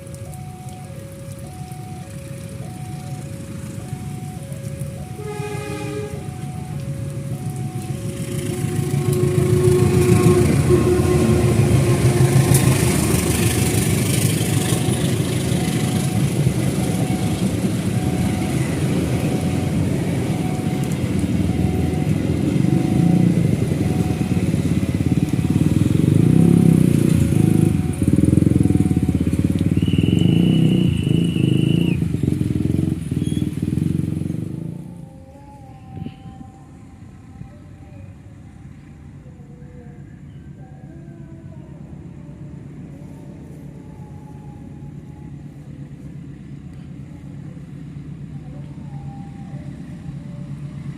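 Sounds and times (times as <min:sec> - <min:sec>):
crossing warning bell dinging: 0:08.4 - 0:25.7
train wheels rumbling and clattering: 0:08.7 - 0:21.4.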